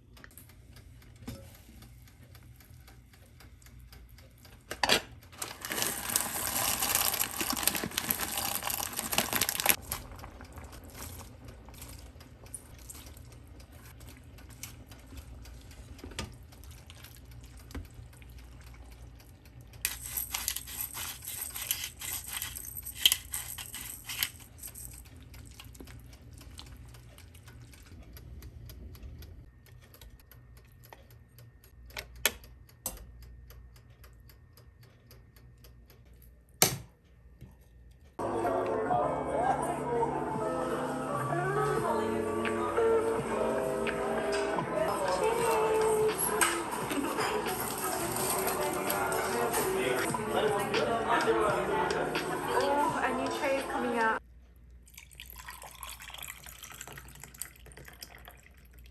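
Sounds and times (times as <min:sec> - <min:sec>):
utensils and dishes clinking: 0:04.7 - 0:10.0, 0:19.9 - 0:25.2, 0:44.9 - 0:53.8.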